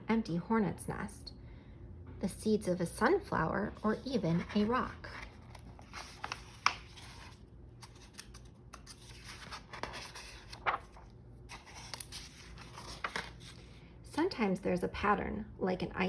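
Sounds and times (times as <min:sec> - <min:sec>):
paper rustling and scraping: 0:03.8 - 0:13.8.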